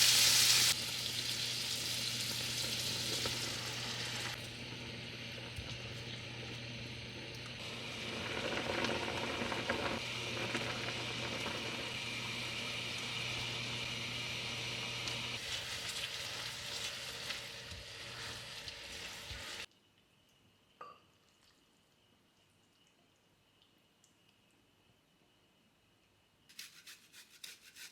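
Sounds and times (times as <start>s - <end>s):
food sizzling in a pan: 0.0s - 19.7s.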